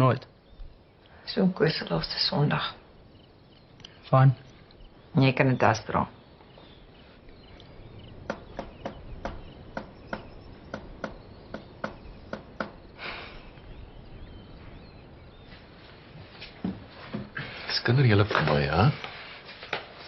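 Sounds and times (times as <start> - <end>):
faint bird chirps: 0.0 - 20.0
hard-soled footsteps: 15.4 - 20.0.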